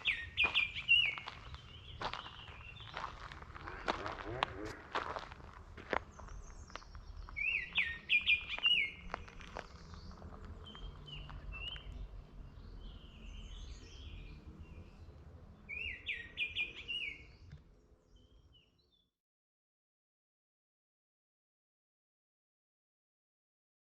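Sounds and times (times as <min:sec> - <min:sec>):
low outdoor rumble: 0:00.0 - 0:18.4
songbirds singing: 0:00.0 - 0:19.1.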